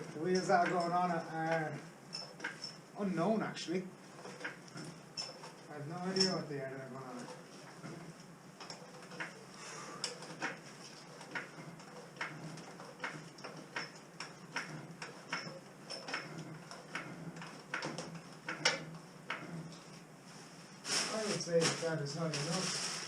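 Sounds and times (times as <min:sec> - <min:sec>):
jack pumping clicks and knocks: 0:00.0 - 0:02.8, 0:07.2 - 0:09.4, 0:10.0 - 0:19.6.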